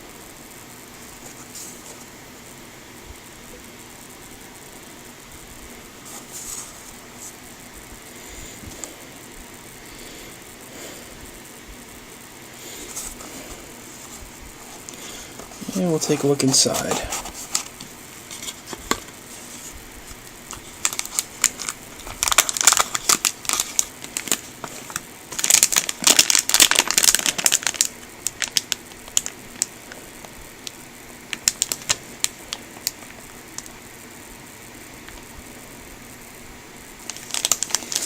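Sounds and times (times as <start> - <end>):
plastic bags crinkling: 12.8 - 30.0, 31.3 - 33.7, 37.0 - 38.0.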